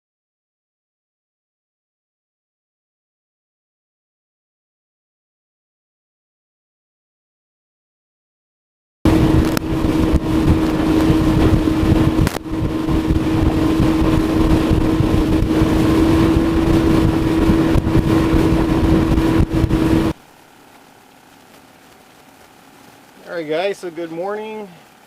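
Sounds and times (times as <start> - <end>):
wind buffeting microphone: 9.1 - 20.2
outboard motor running: 9.1 - 25.0.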